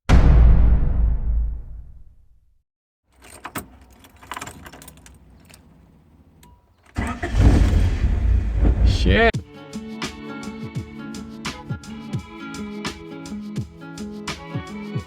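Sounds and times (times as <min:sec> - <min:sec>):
keys jingling: 0:03.1 - 0:08.6
car engine starting and running: 0:03.2 - 0:09.3.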